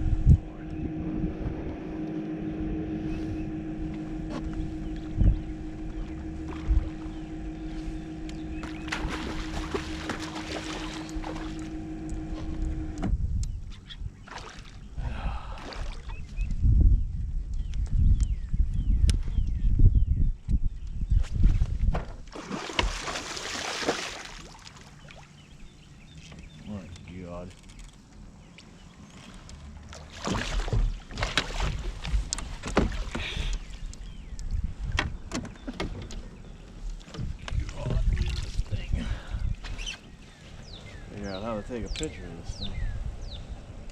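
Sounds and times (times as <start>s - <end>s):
water noise: 0.0s - 16.8s, 22.2s - 43.9s
motor hum: 0.0s - 43.9s
fish thrashing and splashing: 8.2s - 12.5s, 22.3s - 25.3s, 29.9s - 33.5s.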